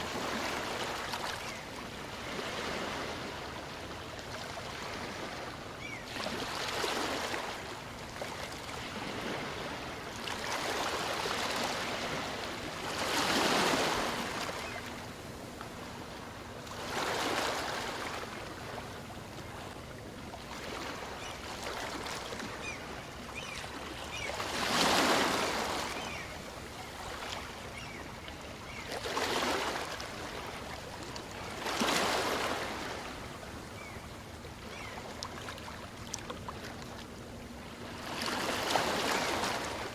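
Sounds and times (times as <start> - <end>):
small waves washing up beach: 0.0 - 15.2.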